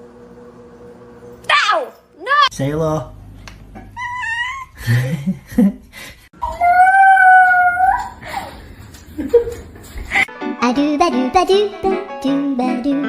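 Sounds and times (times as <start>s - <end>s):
pet howling: 6.4s - 8.2s.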